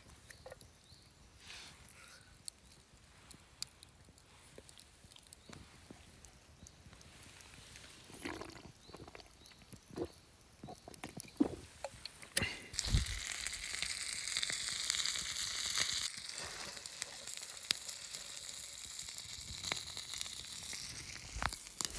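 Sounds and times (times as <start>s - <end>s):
food sizzling in a skillet: 12.7s - 21.9s.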